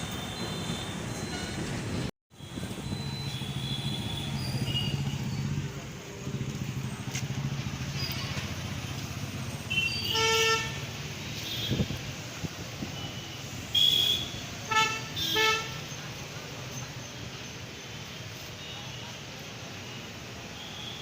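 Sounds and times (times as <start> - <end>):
vehicle horns honking: 2.4 - 5.2, 9.6 - 12.0, 13.0 - 16.0.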